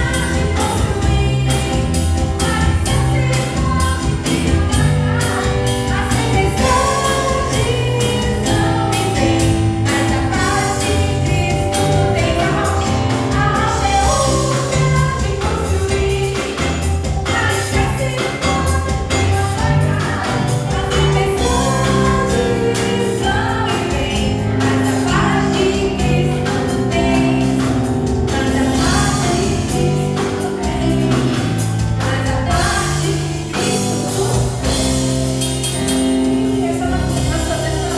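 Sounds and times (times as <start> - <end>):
bass line: 0.0 - 37.9
group of voices singing: 0.0 - 37.9
percussion beat: 0.0 - 37.9.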